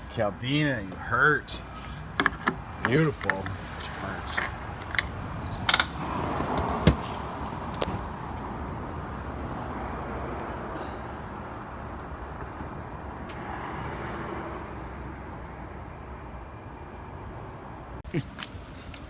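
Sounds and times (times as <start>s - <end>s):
sharp clicks and knocks: 2.2s - 3.6s, 4.3s - 7.1s.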